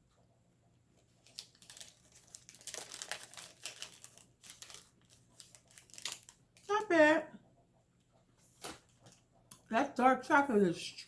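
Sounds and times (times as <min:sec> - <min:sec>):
snack wrapper crinkling: 0:01.2 - 0:06.7.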